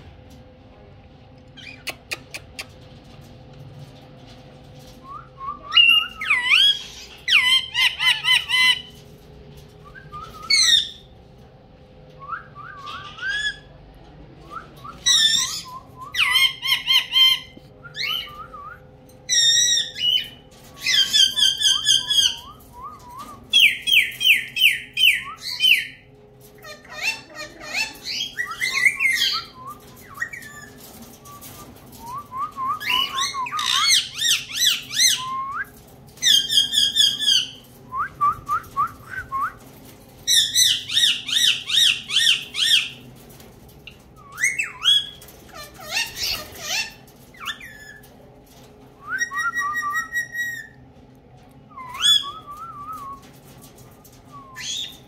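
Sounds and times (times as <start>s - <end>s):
pet birds whistling chirps: 10.2s - 11.1s, 49.1s - 50.8s, 51.8s - 53.0s, 54.3s - 55.0s.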